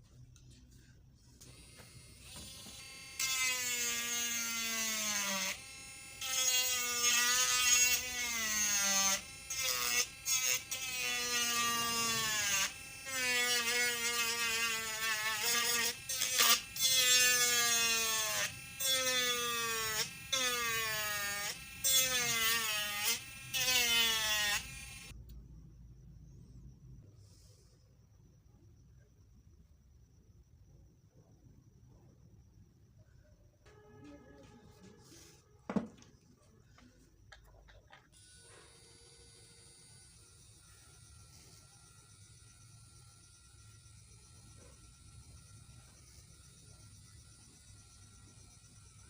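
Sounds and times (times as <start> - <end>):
mini grinder motor whining: 1.4 - 25.1.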